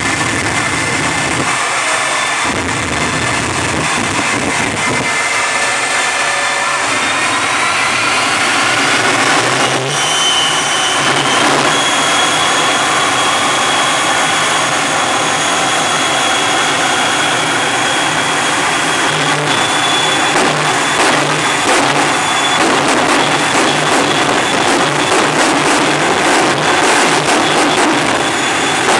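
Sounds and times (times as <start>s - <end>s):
jet engines roaring: 0.0s - 28.9s
sharp cracks: 20.3s - 28.9s.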